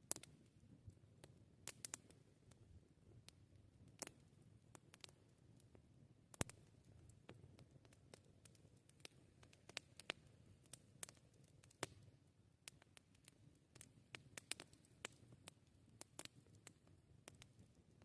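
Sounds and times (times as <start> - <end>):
campfire popping and snapping: 0.0 - 18.0.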